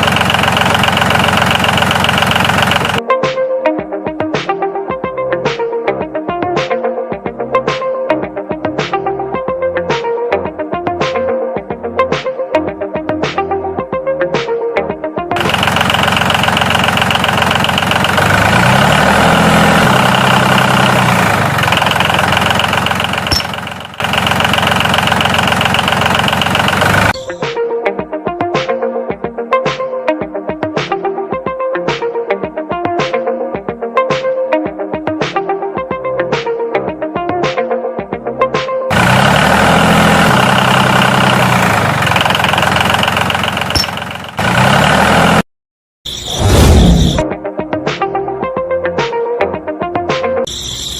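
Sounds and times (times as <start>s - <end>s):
motor running steadily: 0.0s - 3.0s, 15.4s - 18.7s, 19.4s - 27.2s, 38.9s - 44.6s
music: 3.0s - 15.4s, 27.1s - 38.9s, 47.2s - 50.9s.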